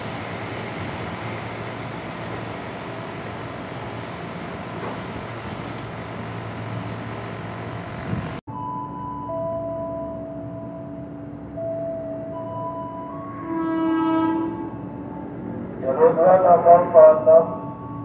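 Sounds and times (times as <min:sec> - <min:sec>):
train rumbling on rails: 0:00.0 - 0:08.4, 0:09.6 - 0:18.0
bell-like chime tones: 0:08.5 - 0:13.4.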